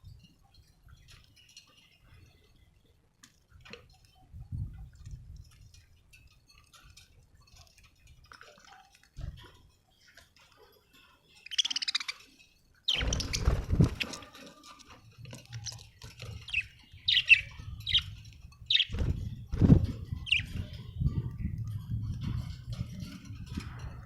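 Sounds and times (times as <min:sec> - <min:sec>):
budgerigars chirping: 0:11.4 - 0:12.3, 0:12.9 - 0:14.2, 0:15.7 - 0:18.1, 0:18.7 - 0:19.0, 0:20.2 - 0:20.6.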